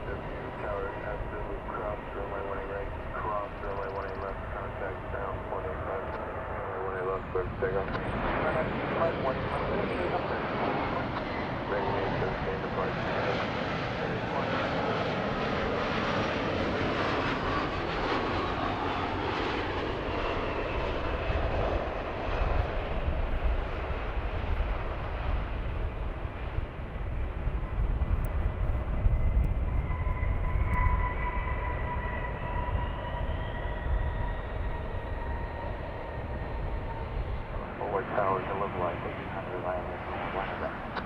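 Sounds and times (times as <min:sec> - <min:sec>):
jet engines roaring: 0:00.0 - 0:41.0.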